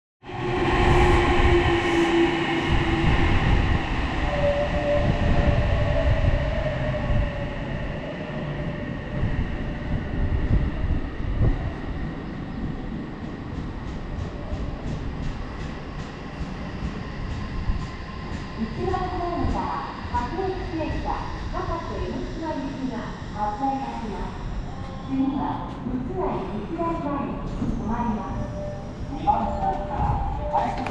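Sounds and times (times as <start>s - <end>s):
train wheels rumbling on rails: 0.3s - 30.9s.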